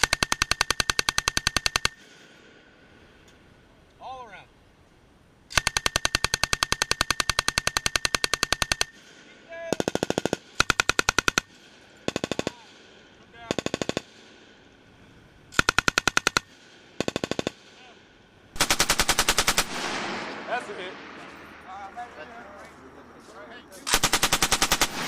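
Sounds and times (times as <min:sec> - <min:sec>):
machine gun firing bursts: 0:00.0 - 0:02.1, 0:05.5 - 0:09.1, 0:09.7 - 0:12.8, 0:13.5 - 0:14.2, 0:15.5 - 0:17.7, 0:18.6 - 0:20.4, 0:23.9 - 0:25.0.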